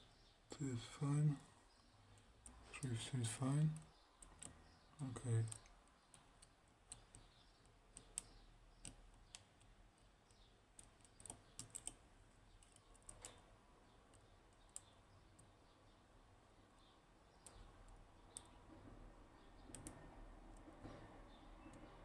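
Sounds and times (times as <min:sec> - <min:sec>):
faint lock pick clicks: 0:03.8 - 0:15.6, 0:16.8 - 0:18.8, 0:19.5 - 0:22.0.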